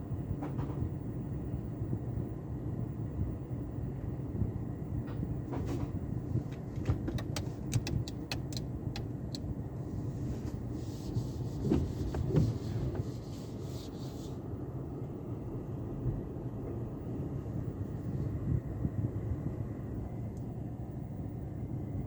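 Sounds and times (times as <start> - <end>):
car wash equipment rumbling: 4.7 - 14.6
sharp clicks and taps: 6.5 - 9.5.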